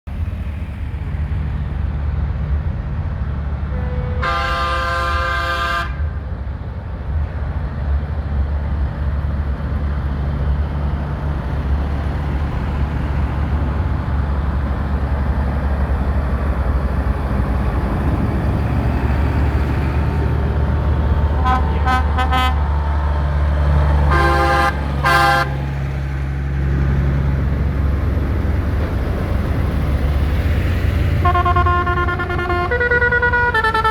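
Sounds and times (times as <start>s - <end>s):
diesel tractor engines running: 0.1s - 33.9s
horns tooting: 3.8s - 6.1s, 21.4s - 22.7s, 24.1s - 25.7s, 31.2s - 33.9s.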